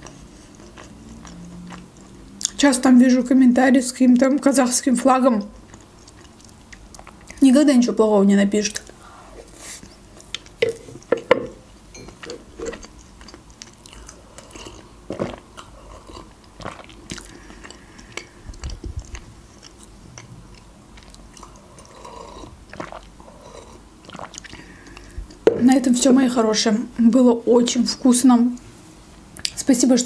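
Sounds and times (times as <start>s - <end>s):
person chewing and swallowing: 0.0s - 2.6s, 5.5s - 7.4s, 9.8s - 11.4s, 12.0s - 25.6s.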